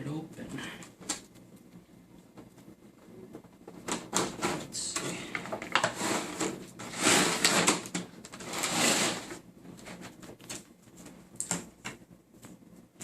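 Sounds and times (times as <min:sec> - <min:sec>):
cardboard rustling and scraping: 0:03.8 - 0:11.1.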